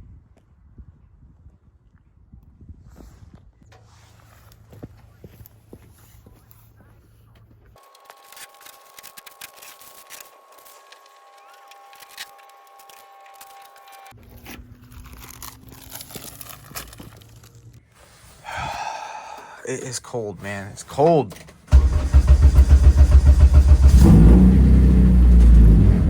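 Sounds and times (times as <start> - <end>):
footsteps crunching in snow: 2.9 - 8.9.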